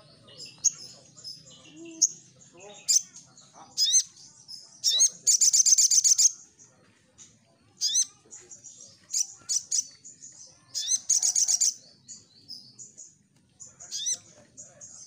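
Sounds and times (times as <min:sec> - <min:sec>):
bird singing sharp chattering notes: 0:00.0 - 0:15.0.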